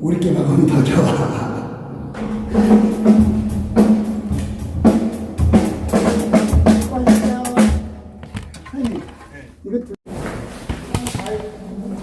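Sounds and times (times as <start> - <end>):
bass drum: 1.9 - 8.3
cymbal hits: 2.1 - 7.9.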